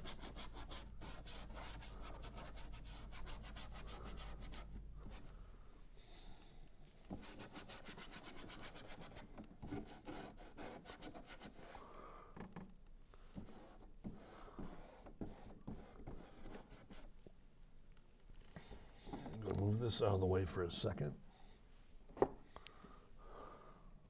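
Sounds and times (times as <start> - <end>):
paintbrush scrubbing: 0.0 - 5.2.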